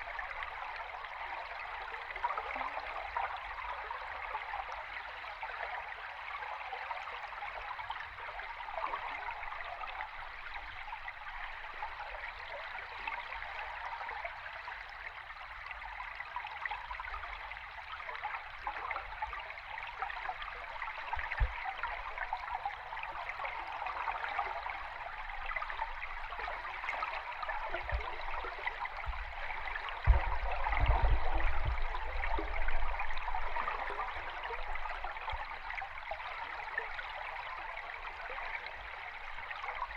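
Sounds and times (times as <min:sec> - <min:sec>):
underwater stream bubbling: 0:00.0 - 0:39.9
low underwater thumps: 0:27.4 - 0:35.8.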